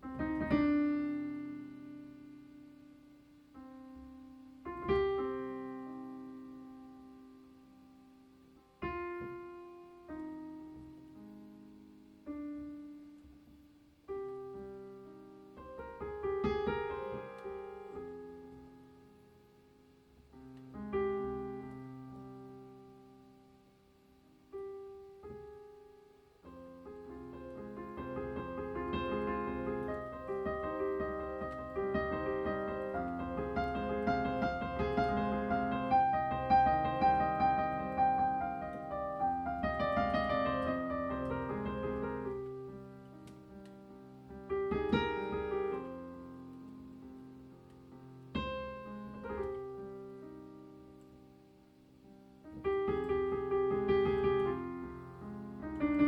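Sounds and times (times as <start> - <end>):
piano music: 0.0 - 23.6, 24.3 - 56.0.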